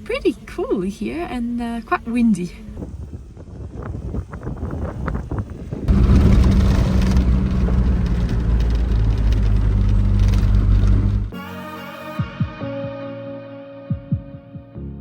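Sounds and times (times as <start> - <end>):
wind rushing: 2.0 - 11.3
vehicle engine running: 4.3 - 11.3.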